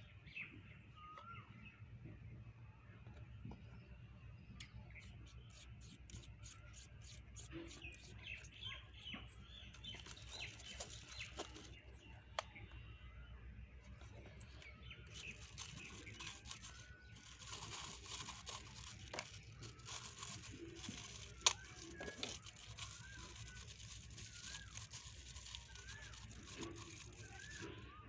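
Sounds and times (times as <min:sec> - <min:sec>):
soft rustles: 0:09.7 - 0:11.9, 0:14.0 - 0:27.8.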